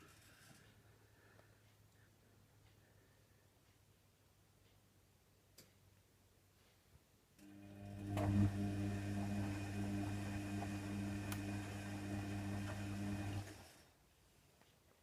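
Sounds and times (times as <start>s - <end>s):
washer dryer motor humming: 7.4s - 13.8s.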